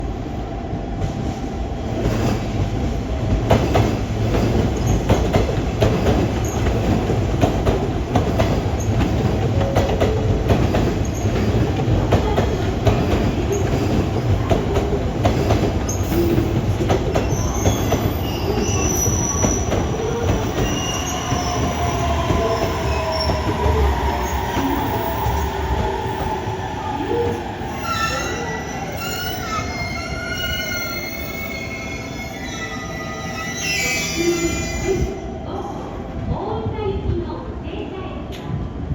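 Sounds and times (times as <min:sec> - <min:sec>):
electric train rumbling: 0:00.0 - 0:38.9
train brakes squealing: 0:17.2 - 0:25.6, 0:27.7 - 0:35.2.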